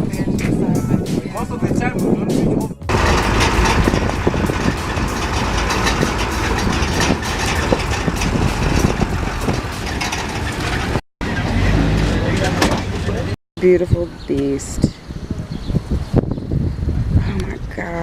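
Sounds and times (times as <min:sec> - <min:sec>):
vehicle engine rumble: 0:02.8 - 0:14.3
small knocks and rattles: 0:02.9 - 0:11.0.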